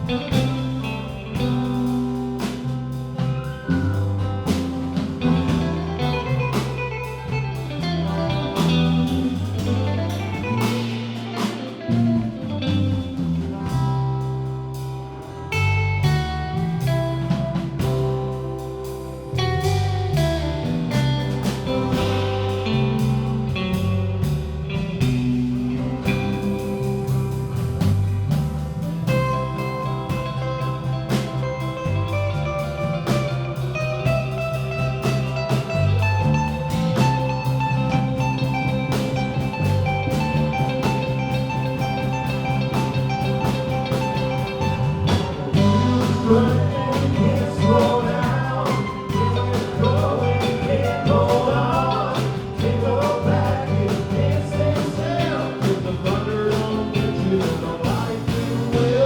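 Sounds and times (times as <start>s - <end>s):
live blues-rock band playing: 0.0s - 59.0s
person singing: 45.6s - 59.0s.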